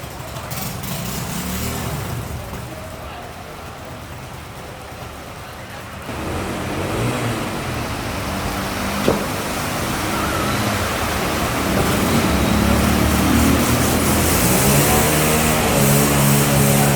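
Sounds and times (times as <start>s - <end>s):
vehicle engines running: 0.0s - 16.9s
water noise: 3.8s - 16.9s.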